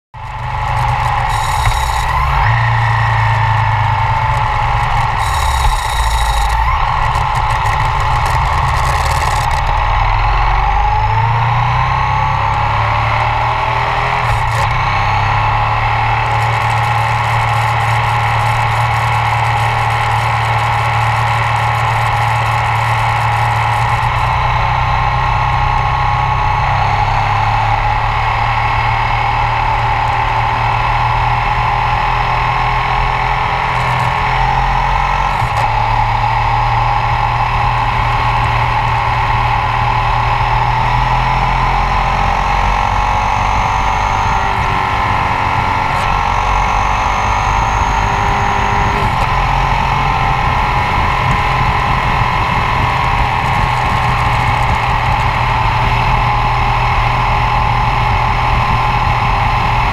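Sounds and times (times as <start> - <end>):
motorcycle engine running: 0.2 - 59.9
road noise: 0.2 - 59.9
wind noise: 37.0 - 59.9.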